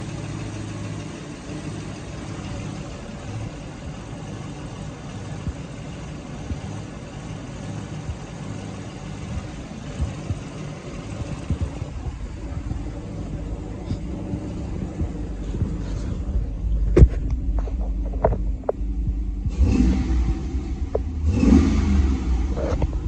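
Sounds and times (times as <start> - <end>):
car engine idling: 0.0 - 23.0
low thumps: 9.1 - 23.0.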